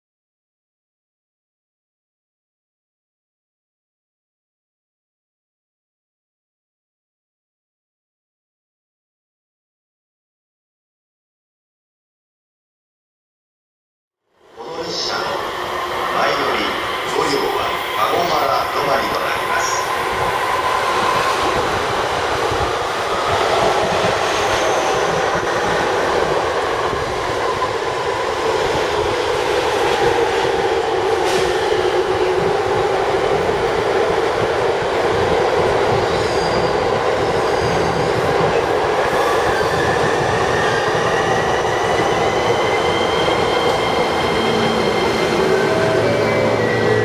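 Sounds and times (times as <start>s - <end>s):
train wheels on rails: 14.8s - 47.0s
wheel squeal: 36.0s - 38.1s.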